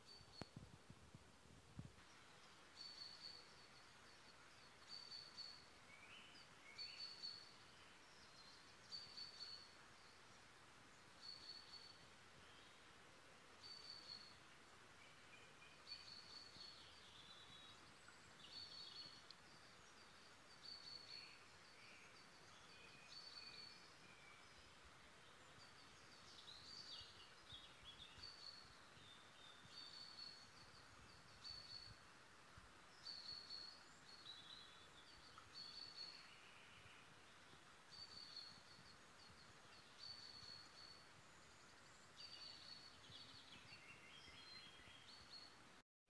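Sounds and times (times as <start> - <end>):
lower bird chirps: 0.0 - 0.7, 1.8 - 12.9, 13.5 - 45.7
soft steady hiss: 0.0 - 45.8.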